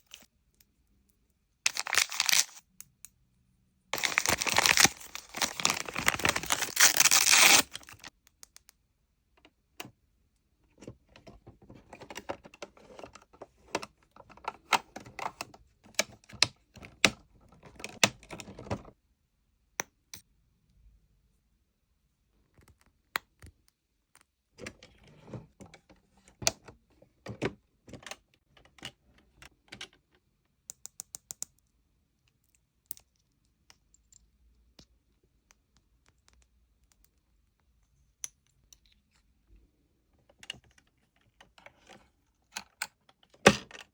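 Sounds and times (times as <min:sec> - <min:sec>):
packaging rustling: 0:01.7 - 0:02.6, 0:04.0 - 0:08.1.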